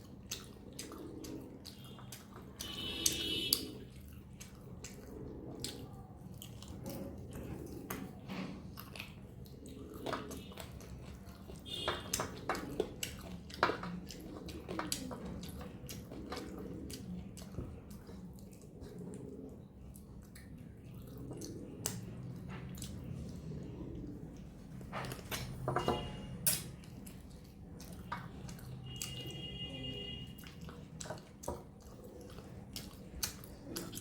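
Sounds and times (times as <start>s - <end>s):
mouth smacks and clicks: 0.0s - 23.4s, 30.3s - 34.0s
person chewing food: 0.0s - 34.0s.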